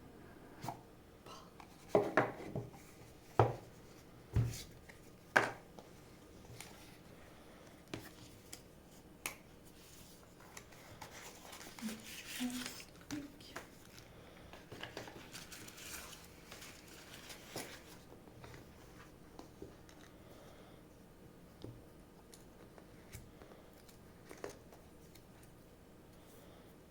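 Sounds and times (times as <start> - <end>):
cardboard and plastic rustling: 9.7 - 19.7.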